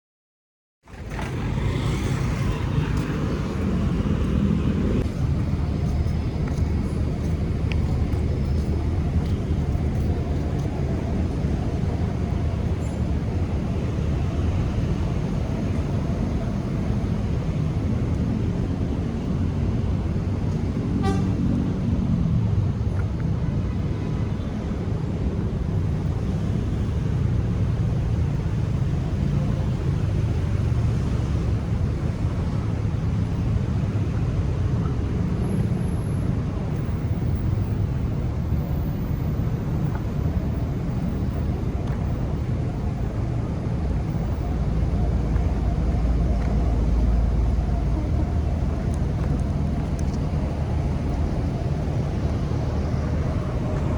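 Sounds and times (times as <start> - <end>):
low rumble of passing cars: 0.8 - 53.9
car horn toot: 21.0 - 21.3.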